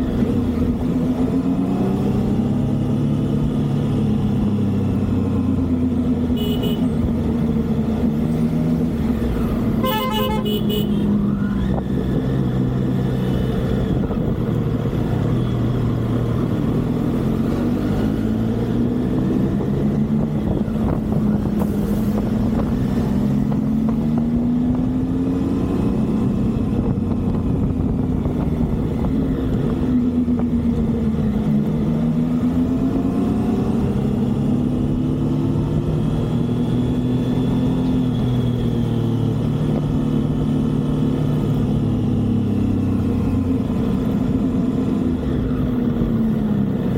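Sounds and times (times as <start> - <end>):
road and wind noise: 0.0 - 46.9
vehicle horn beeping: 6.4 - 7.0, 9.8 - 11.1.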